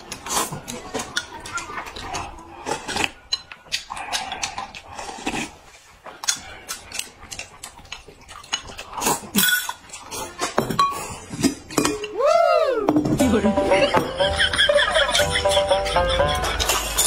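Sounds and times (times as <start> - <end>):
wet chewing and slurping: 0.0 - 12.2, 16.5 - 17.0
utensils clinking on dishes: 9.2 - 12.2.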